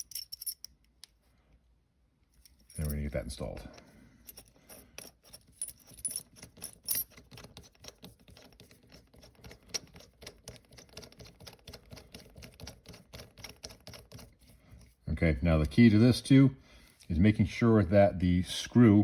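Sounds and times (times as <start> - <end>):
small metal parts clicking and rattling: 0.0 - 0.8, 4.2 - 14.3.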